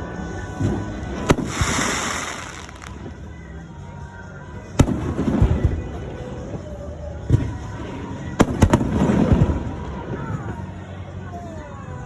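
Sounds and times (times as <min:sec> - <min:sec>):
fireworks bursting: 0:01.2 - 0:03.2.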